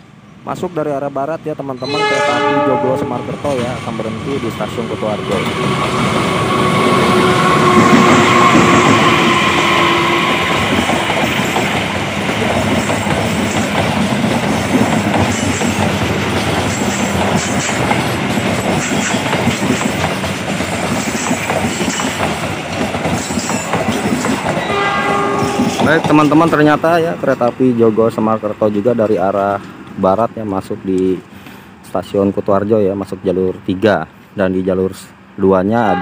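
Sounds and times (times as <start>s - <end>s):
diesel locomotive engine drone: 0.0s - 36.0s
wheels clacking over rail joints: 7.7s - 28.0s.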